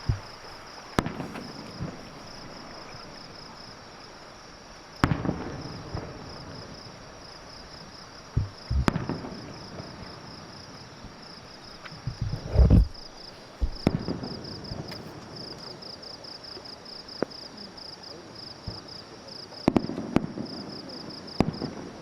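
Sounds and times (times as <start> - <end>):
low firework thump: 0.0 - 2.0, 8.3 - 9.3, 12.0 - 15.1
fireworks bangs: 0.0 - 3.4, 5.0 - 11.2, 12.0 - 17.5, 18.6 - 22.0
insects chirping: 0.0 - 22.0.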